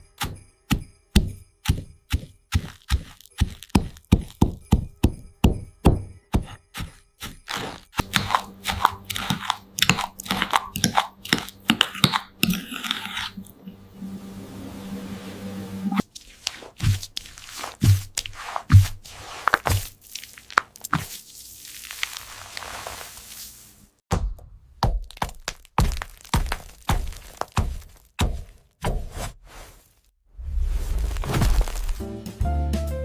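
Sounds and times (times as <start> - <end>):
crackling and crunching: 1.6 - 4.7, 6.5 - 13.6, 16.1 - 23.4, 24.9 - 28.8, 30.8 - 32.1
low steady hum: 13.3 - 16.0.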